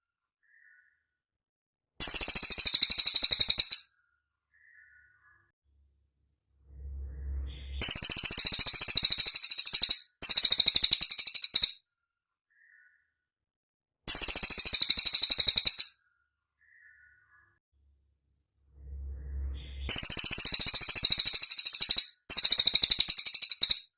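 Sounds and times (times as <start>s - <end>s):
bird high rapid trills: 7.2s - 11.7s, 19.4s - 23.8s.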